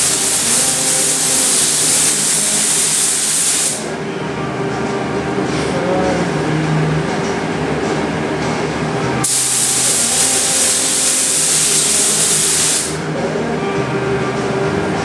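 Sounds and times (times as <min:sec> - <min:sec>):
paint spray gun hissing: 0:00.0 - 0:03.9, 0:09.2 - 0:13.0
machine hum: 0:00.0 - 0:15.0.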